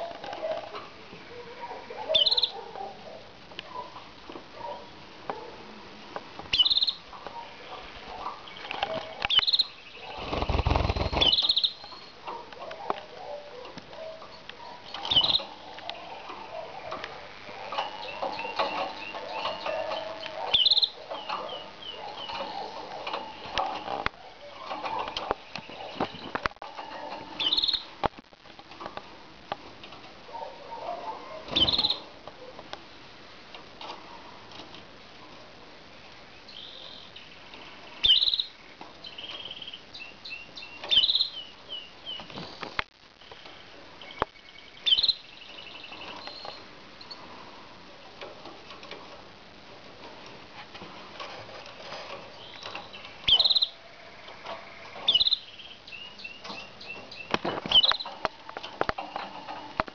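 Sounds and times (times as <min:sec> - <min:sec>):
canaries trilled chirps: 0:00.0 - 0:04.0, 0:06.5 - 0:12.4, 0:13.4 - 0:28.0, 0:30.8 - 0:32.2, 0:36.4 - 0:42.6, 0:44.0 - 0:47.3, 0:52.1 - 0:58.3
wings fluttering: 0:10.0 - 0:11.7.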